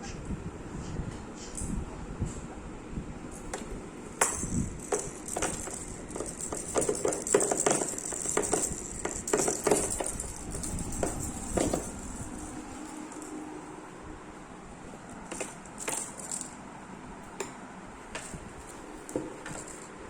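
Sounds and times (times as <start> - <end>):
baby banging on stool parts: 3.4 - 13.2, 15.3 - 16.5, 17.4 - 20.0.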